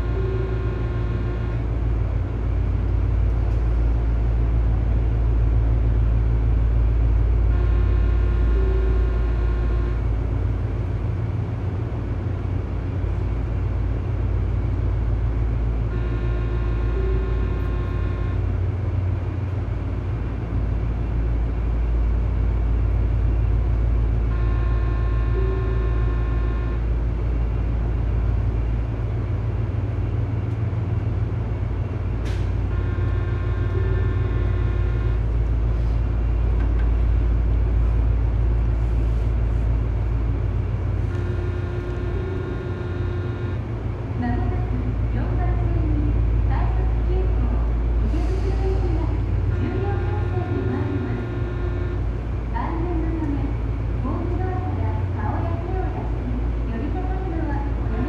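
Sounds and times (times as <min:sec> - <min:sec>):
electric train rumble and hum: 0:00.0 - 0:58.0.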